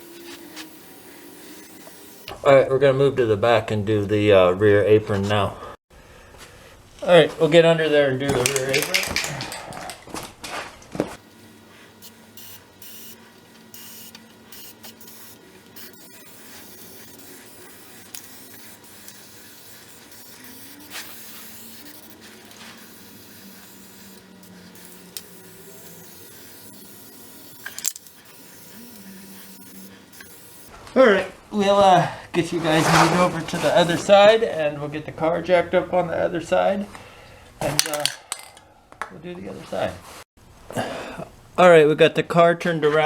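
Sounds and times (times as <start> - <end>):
aerosol spray hissing: 0.0 - 2.3, 11.2 - 30.7.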